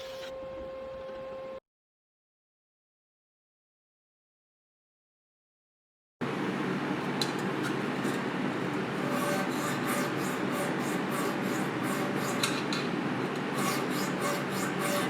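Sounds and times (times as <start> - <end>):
sanding strokes on metal: 7.6 - 15.0.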